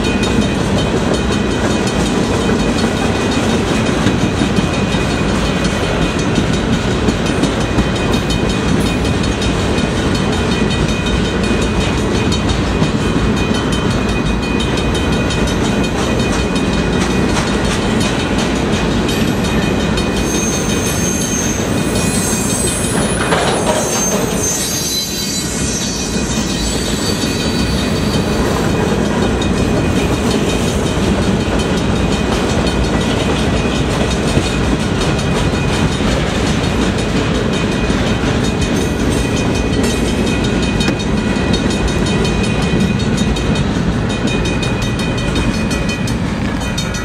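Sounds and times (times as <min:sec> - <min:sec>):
train wheels rumbling on rails: 0:00.0 - 0:47.0
high wheel squeal: 0:20.1 - 0:28.6.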